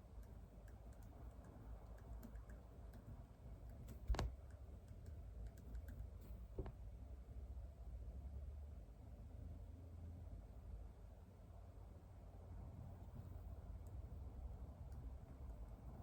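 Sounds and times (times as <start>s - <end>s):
low room hum: 0.0s - 16.0s
computer keyboard clicks: 0.2s - 3.1s, 3.7s - 6.1s.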